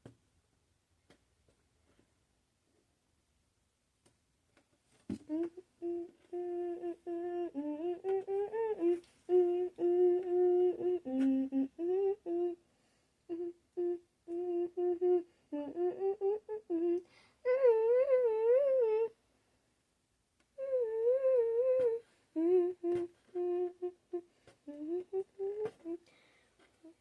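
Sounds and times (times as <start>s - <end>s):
girl humming a tune: 5.1s - 12.6s, 13.3s - 19.2s, 20.6s - 27.0s.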